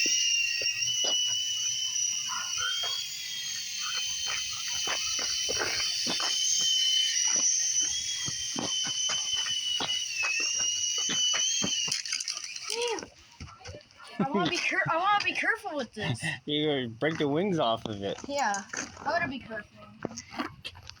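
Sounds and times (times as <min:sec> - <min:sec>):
toy helicopter motor whining: 0:00.0 - 0:16.2, 0:17.9 - 0:21.0.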